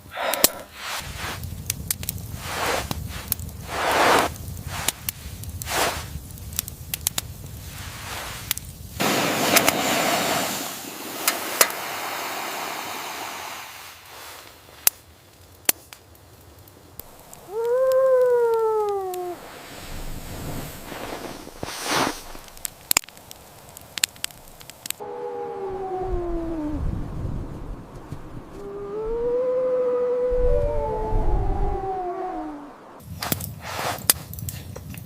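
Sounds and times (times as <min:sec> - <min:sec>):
noisy crunching bursts: 0:00.0 - 0:14.6, 0:17.0 - 0:25.0
steady hiss: 0:00.0 - 0:25.0
distant wolf howl: 0:17.3 - 0:19.5, 0:25.0 - 0:27.2, 0:28.4 - 0:33.0.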